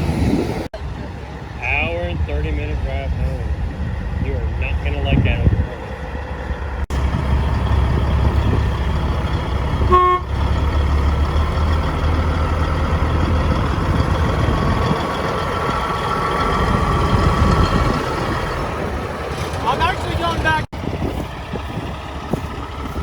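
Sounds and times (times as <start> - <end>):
truck engine rumbling: 0.0 - 23.0
vehicle noise: 0.0 - 23.0
truck horn toot: 9.7 - 10.5.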